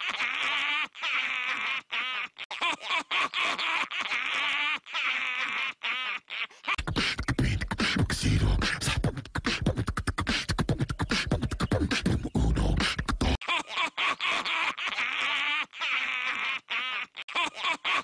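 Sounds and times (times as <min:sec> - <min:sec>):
beatbox vocal percussion: 0:06.7 - 0:13.4
warbling calls: 0:10.4 - 0:13.4.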